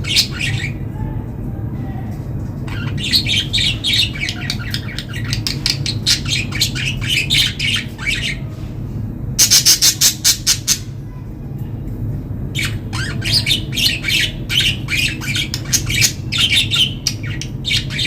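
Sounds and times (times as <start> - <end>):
budgerigars chirping: 0.0 - 0.8, 2.7 - 8.5, 9.4 - 10.9, 12.6 - 18.0
sharp loud squawks: 9.4 - 11.0.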